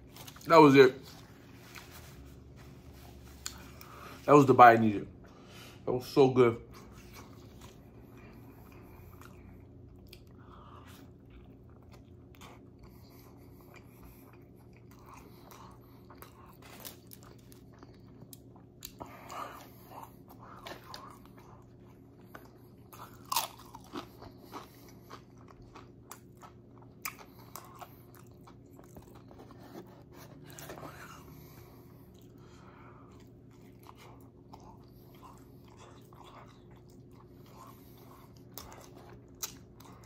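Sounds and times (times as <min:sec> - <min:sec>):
steady low hum: 0:00.0 - 0:40.0
chewing with wet mouth clicks: 0:06.7 - 0:29.5, 0:31.9 - 0:40.0.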